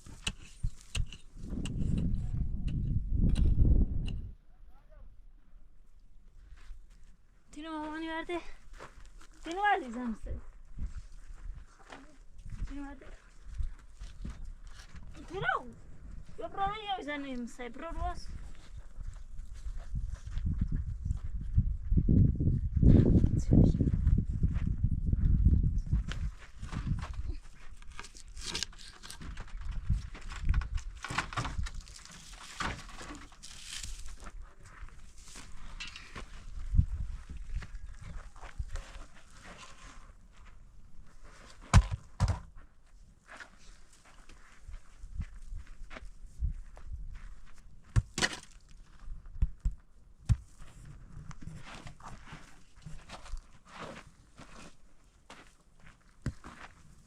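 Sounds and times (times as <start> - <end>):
sharp knocks and thuds: 41.6 - 42.5, 47.9 - 48.4.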